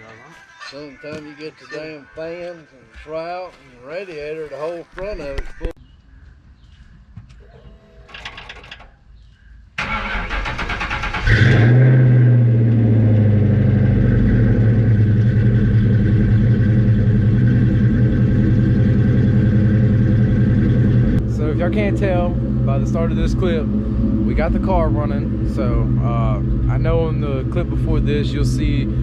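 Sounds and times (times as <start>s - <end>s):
starter motor cranking: 9.8s - 11.8s
car engine starting and idling: 9.8s - 29.0s.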